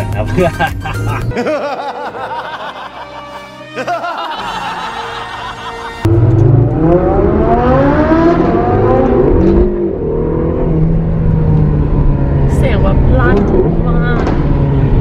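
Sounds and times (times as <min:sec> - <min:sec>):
people laughing: 0:00.0 - 0:06.1
film music: 0:00.0 - 0:08.9
supercar engine revving: 0:06.0 - 0:15.0.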